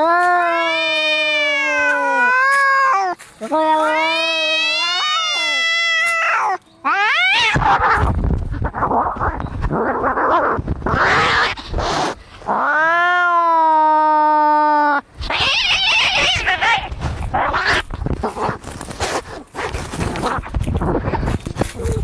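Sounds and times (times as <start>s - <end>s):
cat yowling: 0.0s - 8.8s, 9.9s - 17.9s
cats hissing and screeching: 0.0s - 22.0s.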